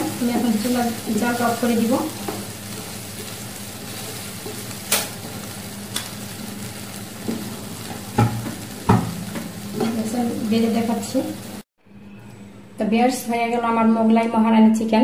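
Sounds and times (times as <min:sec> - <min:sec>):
curry sizzling: 0:00.0 - 0:11.7.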